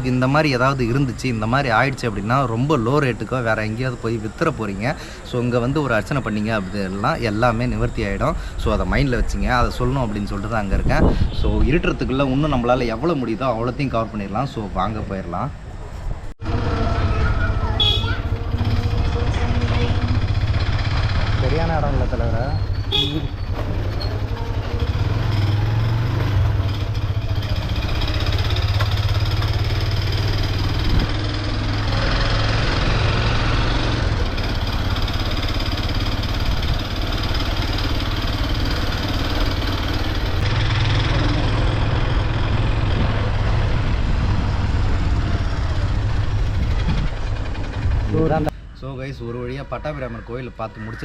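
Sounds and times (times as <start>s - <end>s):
rushing wind noise: 8.3s - 12.6s, 30.5s - 31.3s, 41.7s - 48.7s
motorcycle engine running: 16.4s - 48.5s.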